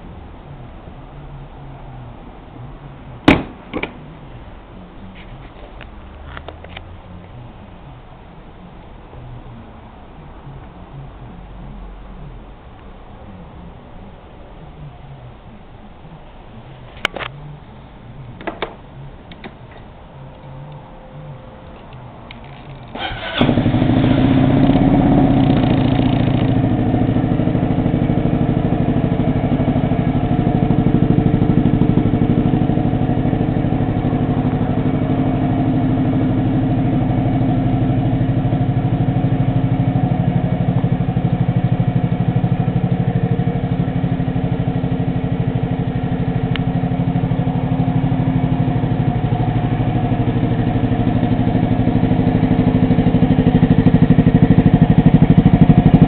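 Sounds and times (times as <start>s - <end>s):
scooter engine idling: 13.3s - 56.0s.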